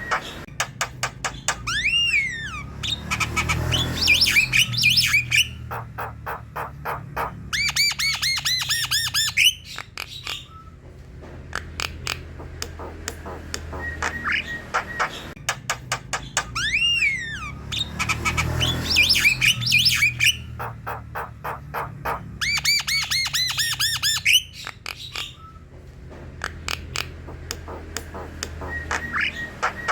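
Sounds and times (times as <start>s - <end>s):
repeated whistled bird notes: 1.3s - 5.8s, 16.2s - 20.6s
bird whistling: 1.5s - 10.8s, 16.4s - 25.7s, 27.7s - 29.9s
bird clicks and squawks: 11.5s - 17.1s, 26.4s - 29.9s.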